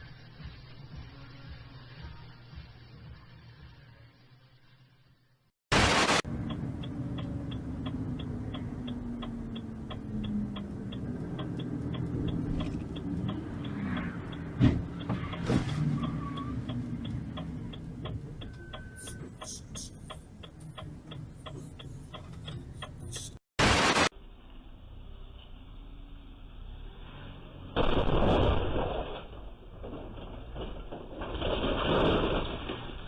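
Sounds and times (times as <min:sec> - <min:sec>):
engine and road rumble: 0:05.3 - 0:33.0
turn signal ticking: 0:06.3 - 0:23.4.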